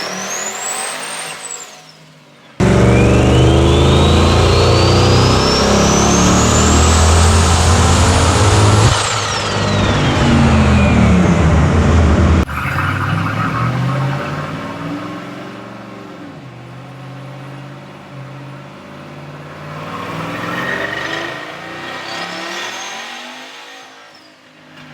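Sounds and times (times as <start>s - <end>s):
high turbo whine: 2.6s - 14.9s
pickup engine at full throttle: 2.6s - 16.4s.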